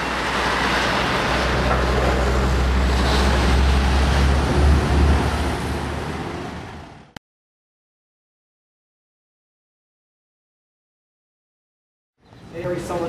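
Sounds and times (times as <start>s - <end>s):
street traffic rumble: 0.0s - 7.2s, 12.2s - 13.0s.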